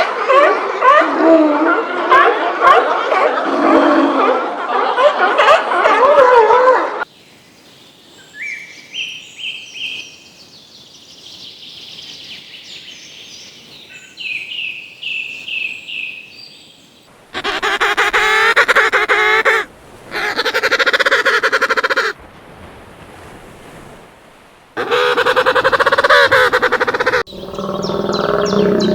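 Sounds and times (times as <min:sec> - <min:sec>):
fowl calling: 0:17.4 - 0:22.2, 0:24.8 - 0:27.3
harsh fowl calls: 0:17.4 - 0:22.2, 0:24.8 - 0:27.3.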